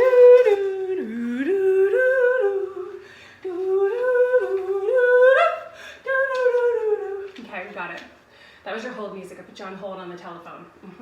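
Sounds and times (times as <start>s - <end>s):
woman humming a tune: 0.0s - 7.4s.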